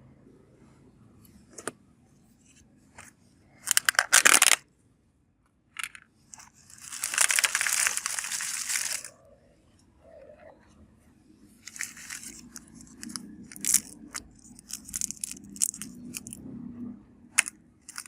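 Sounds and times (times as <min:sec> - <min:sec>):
plastic packaging crinkling: 0:03.7 - 0:04.6, 0:06.4 - 0:09.1, 0:11.6 - 0:16.4, 0:17.4 - 0:18.0.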